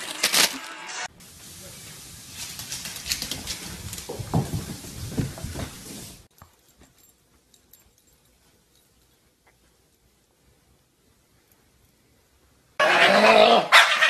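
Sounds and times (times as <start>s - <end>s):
rustling: 1.4s - 12.5s
dog crying: 12.8s - 14.0s.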